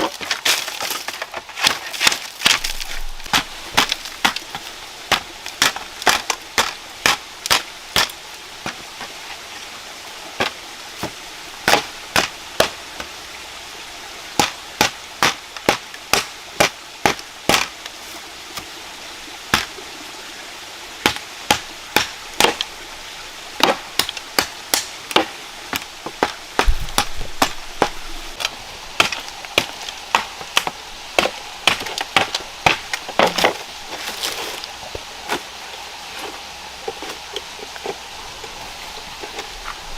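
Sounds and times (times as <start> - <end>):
wood being chopped: 0.0 - 8.8, 10.4 - 12.8, 14.4 - 17.8, 19.5 - 19.7, 21.0 - 22.6, 23.6 - 34.3.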